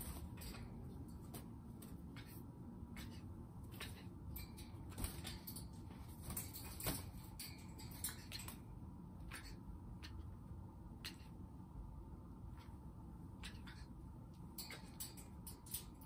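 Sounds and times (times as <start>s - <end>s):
parrot flapping wings: 3.0s - 8.6s.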